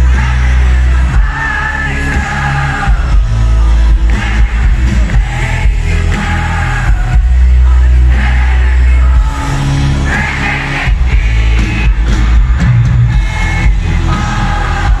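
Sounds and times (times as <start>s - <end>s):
live pop-rock music: 0.0s - 15.0s
person singing: 0.0s - 15.0s.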